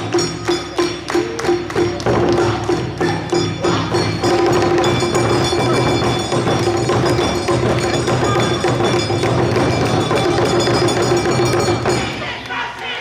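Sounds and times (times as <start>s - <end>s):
drums and percussion band: 0.0s - 12.8s
ringing metallic strokes: 3.3s - 12.2s.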